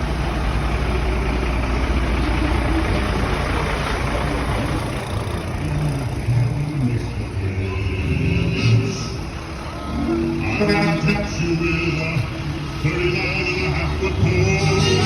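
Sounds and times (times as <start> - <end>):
road noise: 0.0 - 15.0
truck engines rumbling: 0.0 - 15.0.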